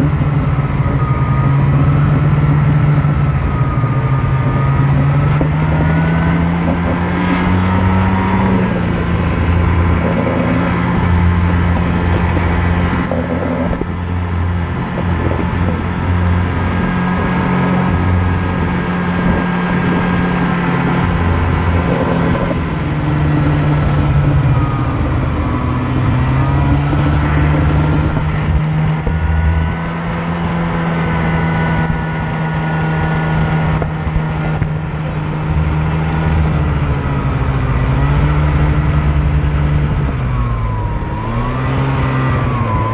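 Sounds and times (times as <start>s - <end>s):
vehicle engine revving: 0.0s - 42.9s.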